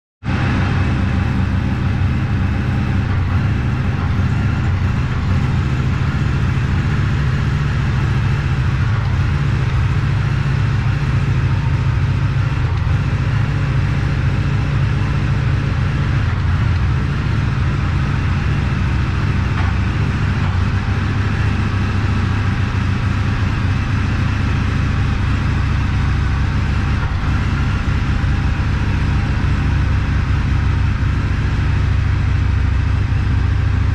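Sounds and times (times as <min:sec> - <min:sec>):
motorcycle engine idling: 0:00.3 - 0:33.9.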